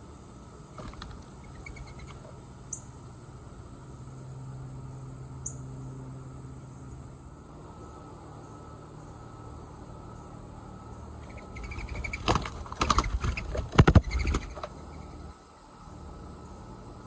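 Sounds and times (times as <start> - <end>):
crickets trilling: 0.0 - 17.0
knocks and scrapes: 11.3 - 14.7.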